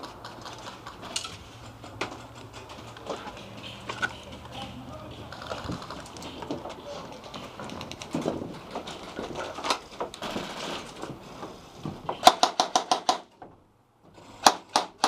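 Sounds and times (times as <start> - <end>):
scuffling and clicks: 0.0 - 11.6.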